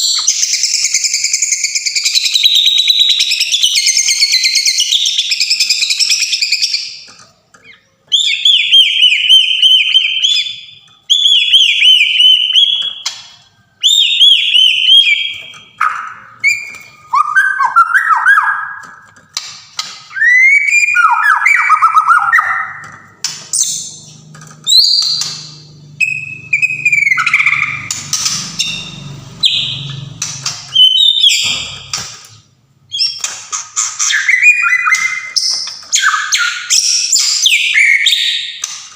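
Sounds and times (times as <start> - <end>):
bird singing whistled phrases: 8.1 - 13.0, 13.8 - 18.9, 20.1 - 22.9, 26.0 - 27.8, 30.7 - 31.9, 34.0 - 38.6.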